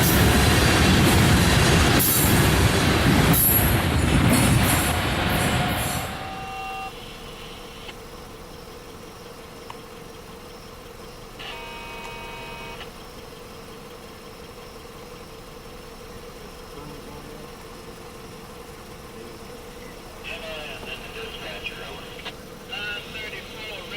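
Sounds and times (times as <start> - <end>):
train rumbling by: 0.0 - 6.6
squealing train wheels: 0.0 - 6.9
steady hum: 0.0 - 23.9
horn sounding: 4.6 - 7.9, 11.4 - 13.0, 19.1 - 23.9.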